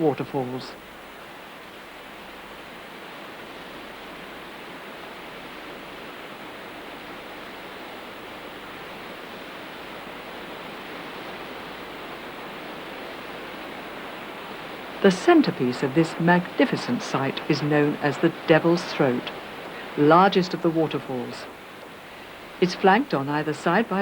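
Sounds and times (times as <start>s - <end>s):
waterfall roaring: 0.0s - 24.0s.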